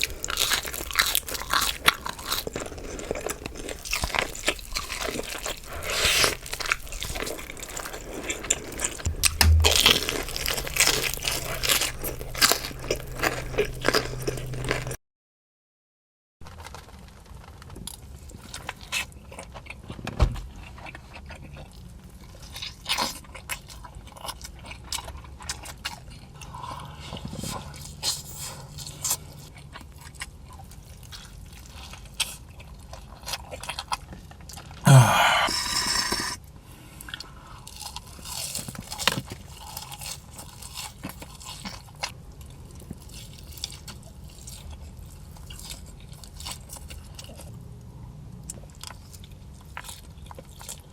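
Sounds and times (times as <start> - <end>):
person chewing crunchy food: 0.0 - 15.0, 34.9 - 36.4
wet mouth clicks: 9.1 - 15.0, 34.9 - 36.4.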